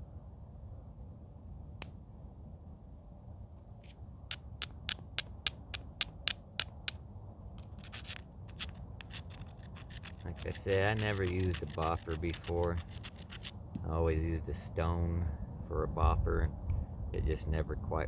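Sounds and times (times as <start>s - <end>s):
sharp clicking taps on stone: 4.3s - 7.0s
stone scraping on stone: 7.6s - 13.6s.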